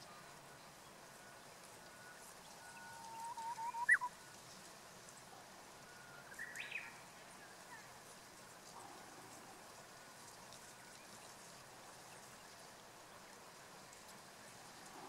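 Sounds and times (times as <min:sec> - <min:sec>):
bird singing whistled song: 0:02.5 - 0:04.2, 0:06.3 - 0:07.0.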